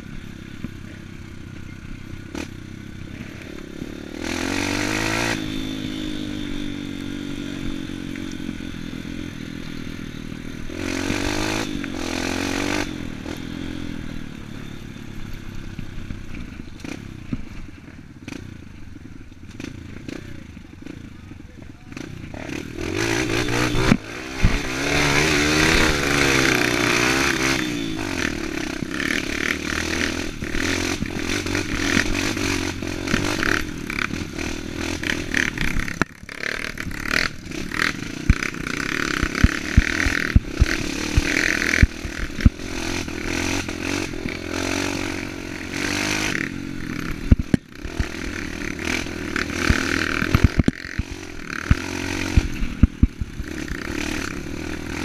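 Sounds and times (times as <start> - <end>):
dirt bike engine revving: 0.0 - 55.0
sharp knocks and clatter: 49.6 - 53.4.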